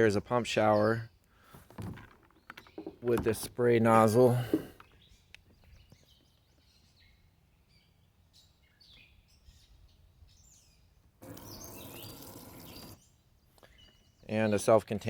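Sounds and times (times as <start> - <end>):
birds chirping: 0.0 - 15.0
spray nozzle hissing: 11.2 - 13.0.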